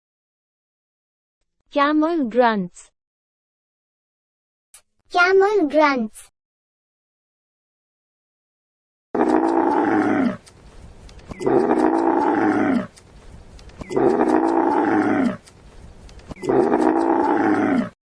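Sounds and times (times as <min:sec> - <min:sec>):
camel grunting: 0:09.2 - 0:10.4, 0:11.3 - 0:13.0, 0:13.8 - 0:15.5, 0:16.3 - 0:18.0.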